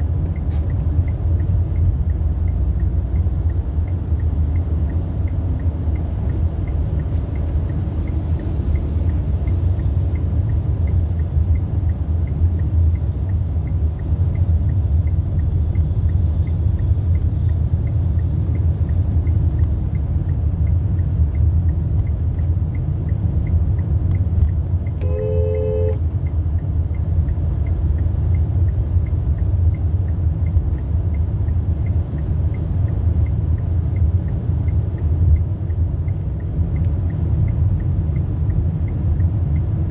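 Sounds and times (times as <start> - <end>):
car engine and road noise: 0.0 - 39.9
two-tone car horn: 25.0 - 26.0.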